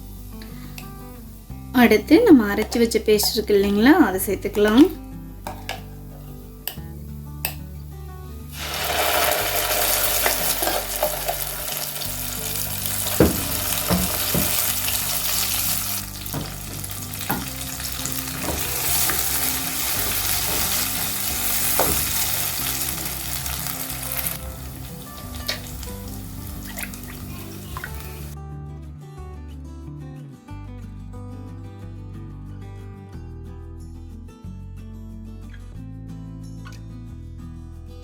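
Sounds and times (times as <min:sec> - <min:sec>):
paste sizzling in hot oil: 0:08.5 - 0:28.4.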